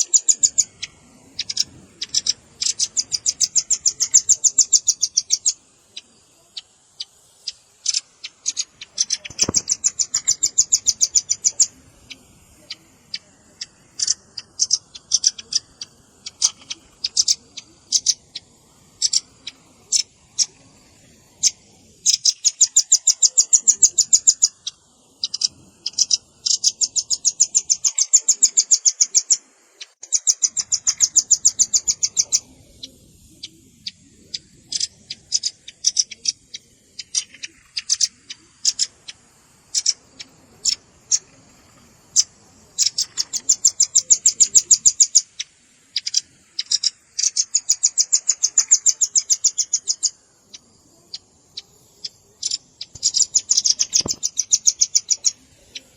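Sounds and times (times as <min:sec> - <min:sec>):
bird trilling high chips: 0:07.0 - 0:12.3, 0:13.6 - 0:20.6, 0:42.1 - 0:55.9.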